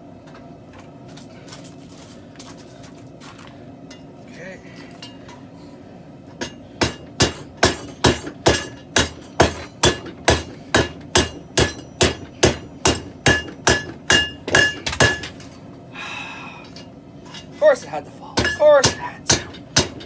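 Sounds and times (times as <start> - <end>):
hammer on anvil with metallic ring: 6.4 - 15.3, 18.4 - 20.0.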